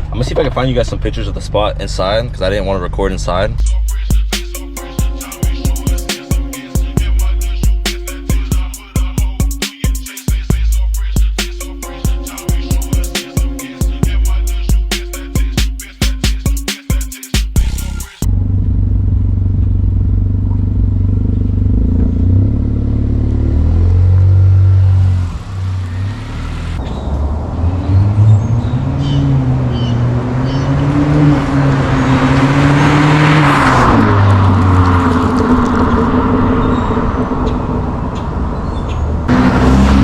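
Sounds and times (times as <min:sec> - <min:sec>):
car engine revving: 0:17.6 - 0:40.0.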